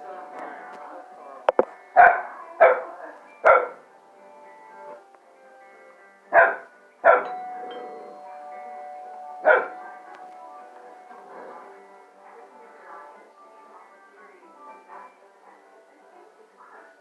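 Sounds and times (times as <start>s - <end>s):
background music: 0.0s - 17.0s
dog barking: 2.0s - 3.8s, 6.3s - 7.3s, 9.4s - 9.8s.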